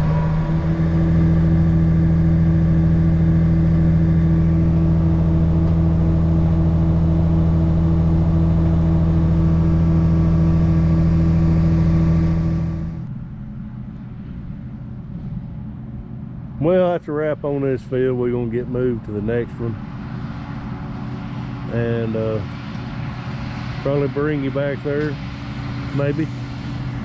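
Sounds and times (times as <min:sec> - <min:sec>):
tractor engine at high revs: 0:00.0 - 0:13.1, 0:19.0 - 0:27.0
dull engine hum: 0:00.0 - 0:27.0.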